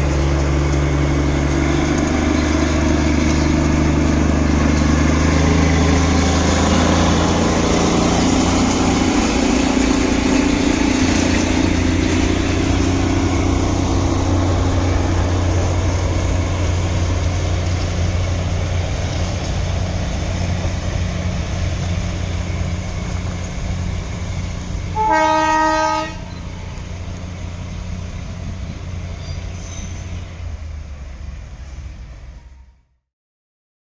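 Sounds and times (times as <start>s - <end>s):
train rumbling: 0.0s - 33.0s
train horn blast: 24.9s - 26.6s.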